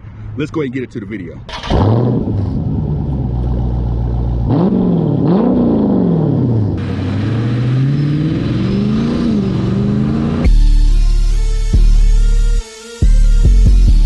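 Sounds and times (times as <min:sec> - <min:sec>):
car engine idling and revving: 0:01.5 - 0:11.9.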